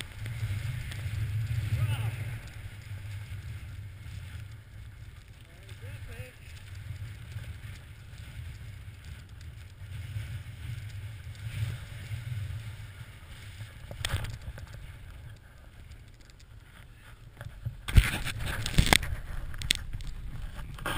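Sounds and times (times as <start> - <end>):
snow scraping: 0.0 - 9.2, 9.8 - 14.6.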